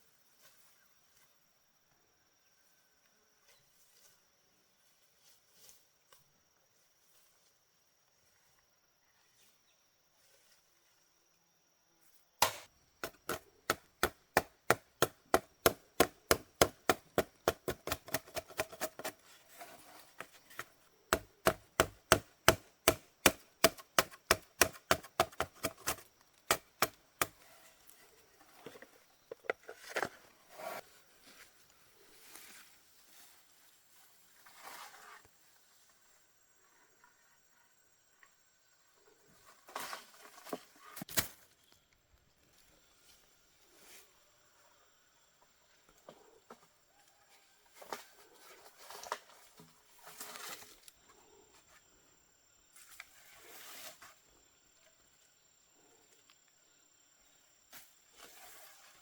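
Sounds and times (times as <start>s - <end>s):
blade chopping on wooden board: 12.4s - 19.2s, 21.1s - 27.4s.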